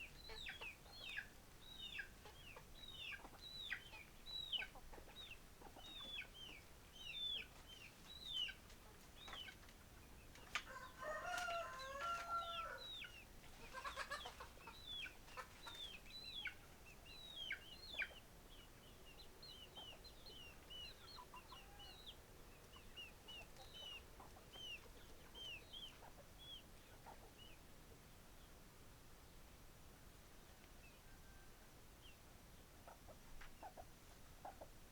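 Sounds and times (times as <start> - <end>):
chicks peeping: 0.1 - 10.6, 11.3 - 27.6
chickens calling loudly: 8.4 - 16.8, 17.4 - 27.5.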